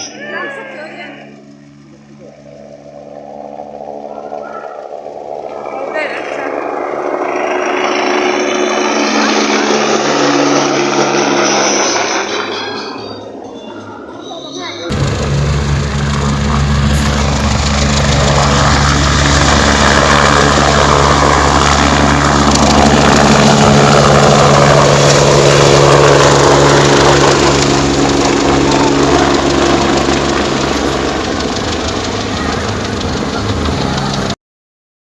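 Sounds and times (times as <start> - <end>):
helicopter flying overhead: 0.0 - 34.4.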